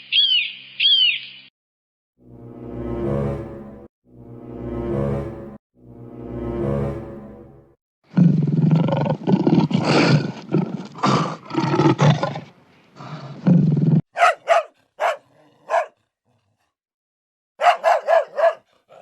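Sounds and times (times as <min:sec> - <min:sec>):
dog barking: 0:14.1 - 0:16.0, 0:17.6 - 0:19.0.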